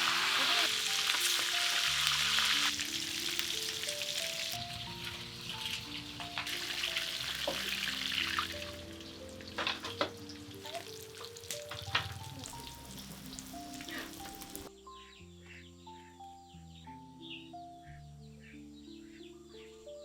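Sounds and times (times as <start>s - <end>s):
food sizzling in hot oil: 0.0s - 14.7s
instrumental background music: 0.0s - 20.0s.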